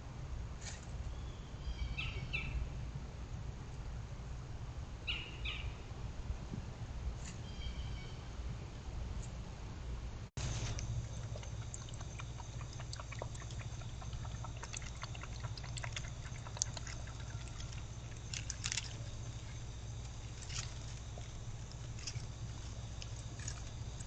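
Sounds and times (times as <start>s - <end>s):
steady low hum: 0.0s - 24.0s
animal lapping water: 10.4s - 24.0s.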